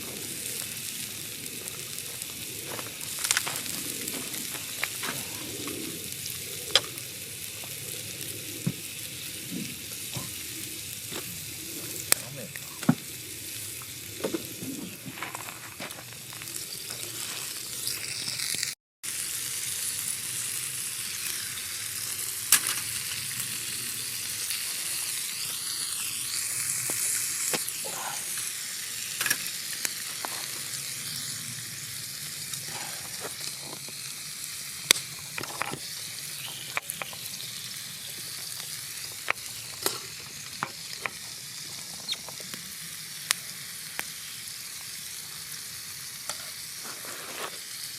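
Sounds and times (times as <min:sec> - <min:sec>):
campfire pops and crackles: 0:00.0 - 0:47.9
steak sizzling on griddle: 0:00.0 - 0:47.9.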